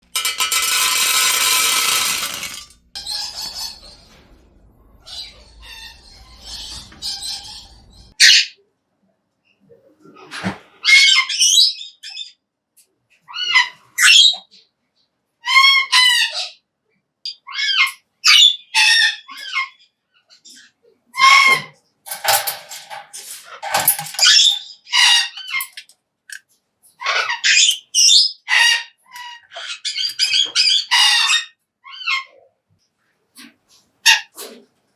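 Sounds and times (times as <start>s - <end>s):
cockatoo screeching: 27.0s - 32.4s.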